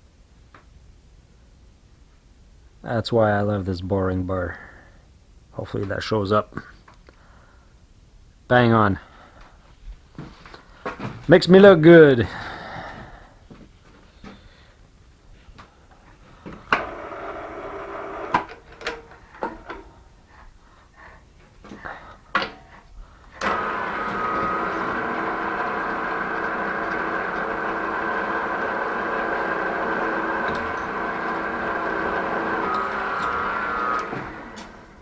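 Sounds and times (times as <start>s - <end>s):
machine tool motor humming: 16.7s - 19.8s, 23.4s - 35.0s.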